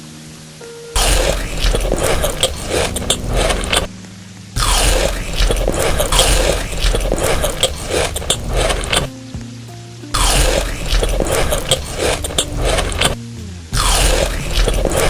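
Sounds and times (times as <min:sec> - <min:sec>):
crunchy biting and chewing: 0:01.0 - 0:03.9, 0:04.6 - 0:09.1, 0:10.2 - 0:13.2, 0:13.8 - 0:15.0.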